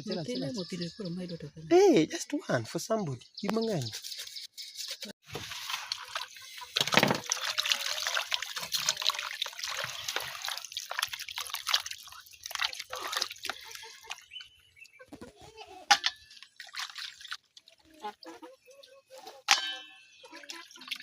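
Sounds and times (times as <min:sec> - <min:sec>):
water trickling and splashing: 0:05.2 - 0:21.0
water drips: 0:05.3 - 0:15.0, 0:15.9 - 0:18.0.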